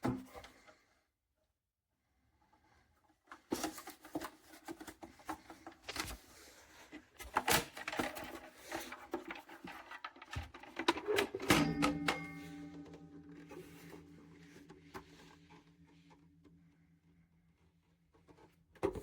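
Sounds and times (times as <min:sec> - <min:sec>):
objects being handled: 0:03.2 - 0:16.7.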